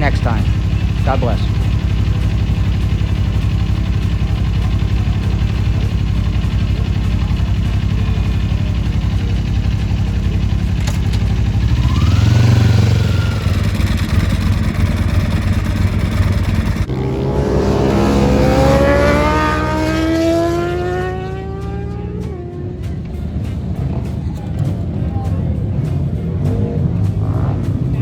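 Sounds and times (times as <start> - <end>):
motorcycle accelerating hard: 0.0 - 24.7, 25.6 - 28.0
motorcycle engines running: 0.0 - 28.0.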